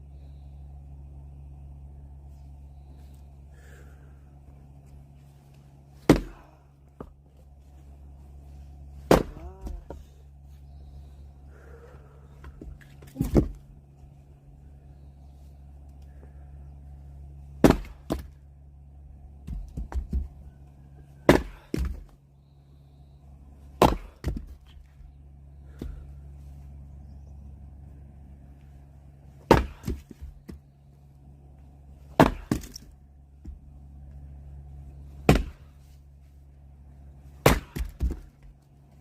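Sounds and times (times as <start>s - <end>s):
steady low hum: 0.0s - 39.0s
axe blows splitting wood: 6.0s - 6.5s, 9.0s - 9.4s, 17.6s - 18.3s, 21.3s - 22.0s, 23.8s - 24.5s, 29.4s - 30.2s, 32.1s - 32.8s, 35.2s - 35.8s, 37.4s - 38.2s.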